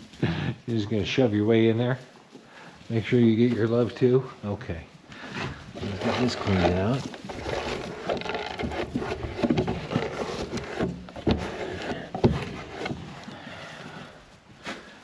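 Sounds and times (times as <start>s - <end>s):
scraping feed pan: 5.2s - 13.6s.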